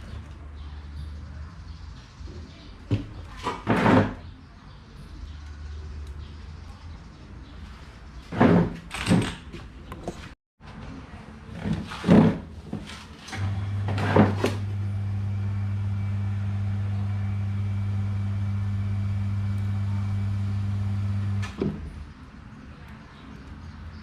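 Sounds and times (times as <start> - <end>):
knocks and clatters of handling: 8.3 - 10.8
electric fan motor humming: 13.3 - 21.6.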